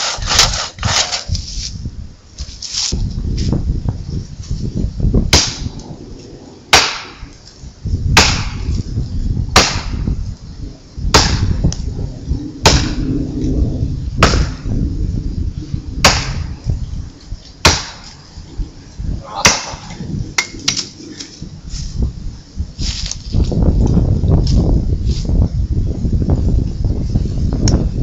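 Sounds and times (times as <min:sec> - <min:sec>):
axe chopping tree trunk: 0:05.3 - 0:05.7, 0:06.7 - 0:07.2, 0:08.2 - 0:08.6, 0:09.5 - 0:10.1, 0:11.1 - 0:11.6, 0:14.2 - 0:14.6, 0:16.0 - 0:16.5, 0:17.6 - 0:18.1, 0:19.4 - 0:19.8.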